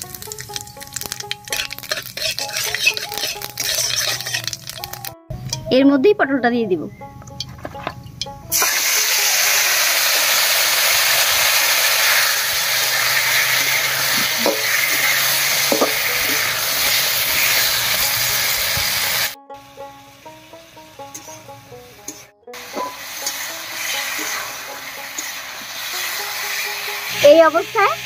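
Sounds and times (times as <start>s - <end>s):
vegetables sizzling in hot oil: 0.0s - 5.1s, 8.5s - 28.0s
spatula scraping a pan: 1.0s - 5.0s, 12.0s - 19.4s, 21.0s - 27.2s.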